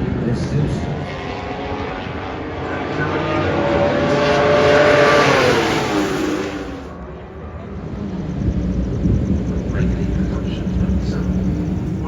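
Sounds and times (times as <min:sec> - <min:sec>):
racing motorcycle passing: 0:00.0 - 0:07.0.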